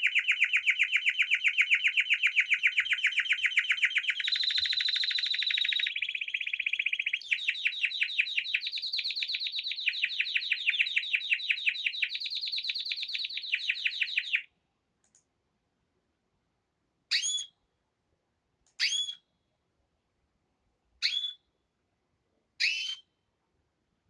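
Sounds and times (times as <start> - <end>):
songbird trilling chirps: 0.0 - 14.5, 21.0 - 21.4, 22.6 - 23.1.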